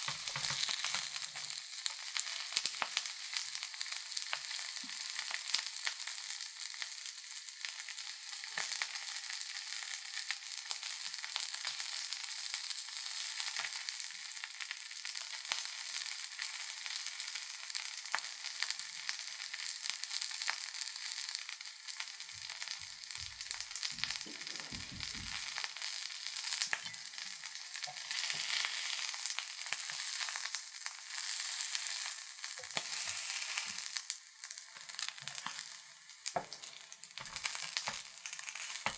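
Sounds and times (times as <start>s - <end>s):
batter sizzling in hot oil: 0.0s - 38.9s.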